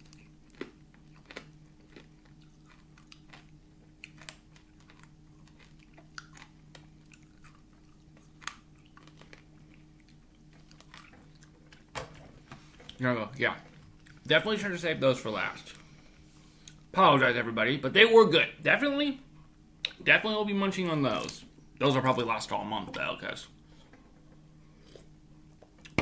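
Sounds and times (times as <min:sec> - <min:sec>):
hard candy crunching: 0:00.0 - 0:11.9
steady low hum: 0:00.0 - 0:26.0.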